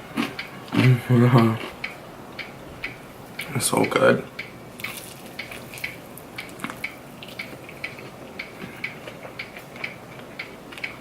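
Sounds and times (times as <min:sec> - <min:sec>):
person chewing food: 0:00.0 - 0:02.5, 0:04.8 - 0:11.0.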